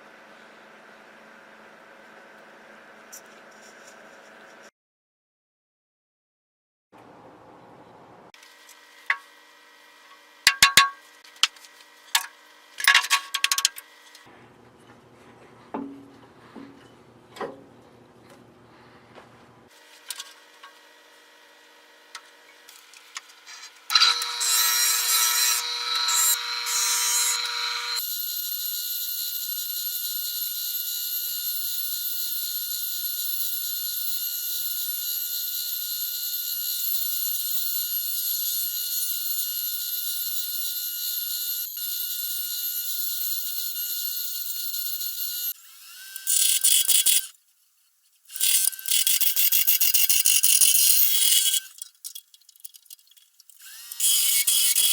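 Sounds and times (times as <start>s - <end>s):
power tool whining: 22.1s - 47.4s, 48.3s - 54.9s.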